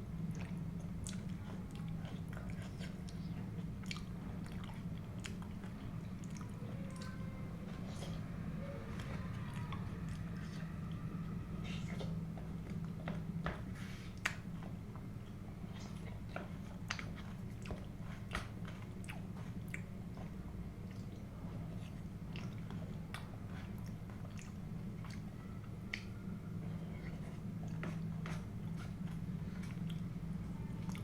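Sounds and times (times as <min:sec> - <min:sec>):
steady low hum: 0:00.0 - 0:31.0
chewing food: 0:00.2 - 0:31.0.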